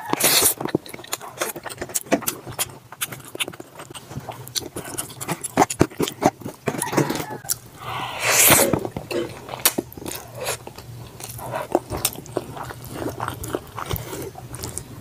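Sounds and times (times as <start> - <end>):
wet chewing and mouth smacks: 0.0 - 7.7, 8.4 - 15.0
slurp of noodles: 7.9 - 9.3.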